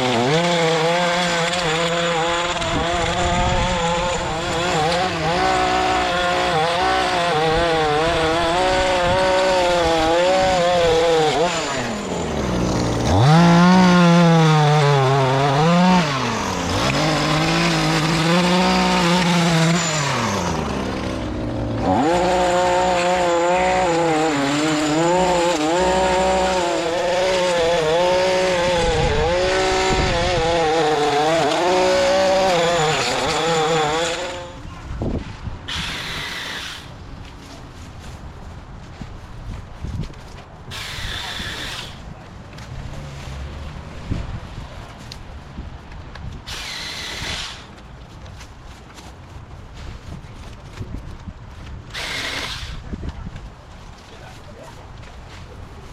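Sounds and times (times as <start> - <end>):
lawn mower cutting grass: 0.0 - 34.7, 35.7 - 37.0, 40.7 - 42.0, 46.5 - 47.8, 51.9 - 52.9.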